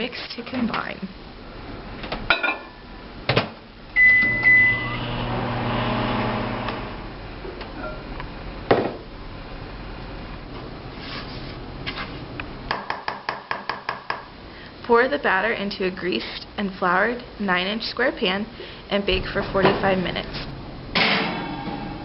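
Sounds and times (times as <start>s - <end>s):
appliance beep: 4.0s - 5.4s
appliance motor humming: 4.2s - 7.1s.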